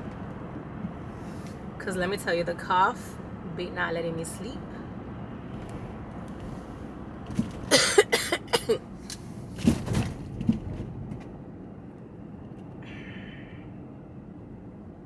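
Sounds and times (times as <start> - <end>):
woman coughing harshly: 7.7 - 8.8.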